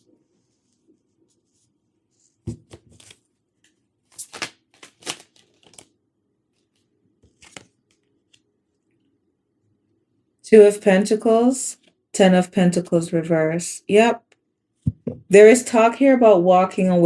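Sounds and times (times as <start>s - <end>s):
cards rustling and tapping: 2.3s - 8.5s.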